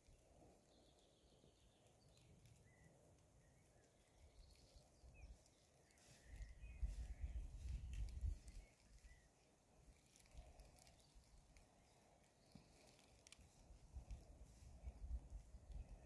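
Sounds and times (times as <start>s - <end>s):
bird chirps: 0.7s - 9.3s
low rumble on the microphone: 6.0s - 9.3s, 13.5s - 16.0s.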